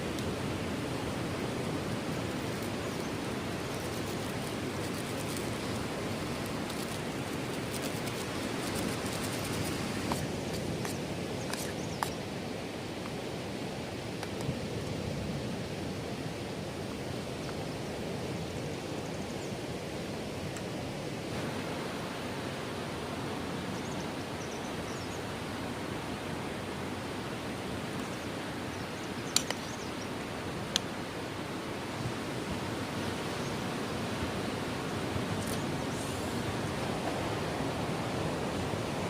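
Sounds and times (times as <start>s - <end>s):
surf breaking on a beach: 30.2s - 39.0s.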